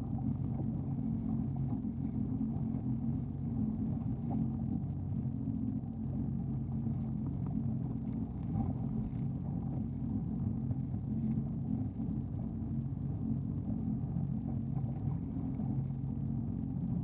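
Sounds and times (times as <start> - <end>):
jet ski engine running: 0.0 - 17.0.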